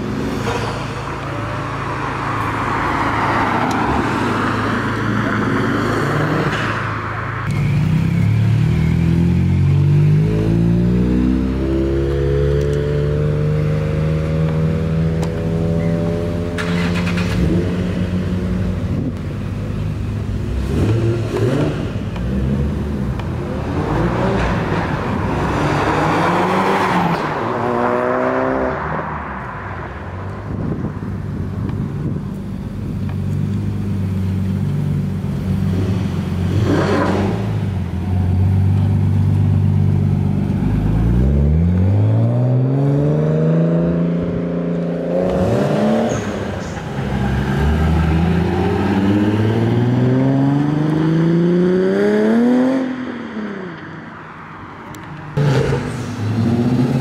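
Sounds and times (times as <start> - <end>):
car revving: 0.0 - 57.0
car engine accelerating: 31.6 - 53.8.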